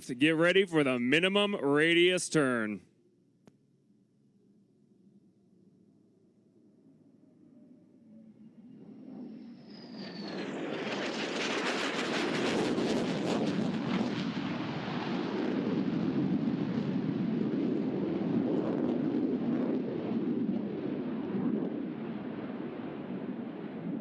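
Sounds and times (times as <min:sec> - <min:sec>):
fighter jet engine roaring: 0:07.4 - 0:24.0.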